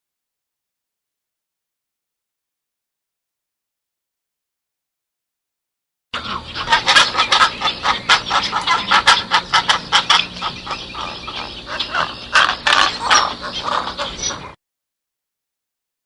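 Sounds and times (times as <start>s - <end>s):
fowl-like birds calling: 6.2s - 14.6s.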